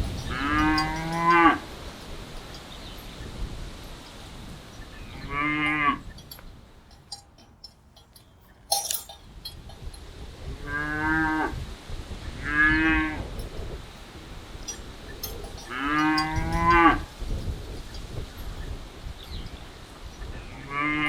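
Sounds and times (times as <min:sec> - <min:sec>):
cattle mooing: 0:00.2 - 0:01.8, 0:05.2 - 0:06.3, 0:15.2 - 0:17.1.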